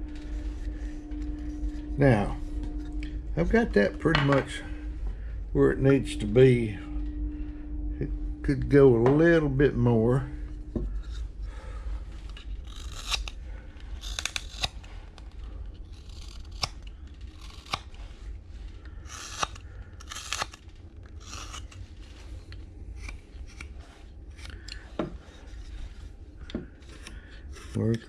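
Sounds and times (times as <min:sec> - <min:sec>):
knife carving wood: 0:12.3 - 0:15.2, 0:15.8 - 0:18.2, 0:18.9 - 0:28.0.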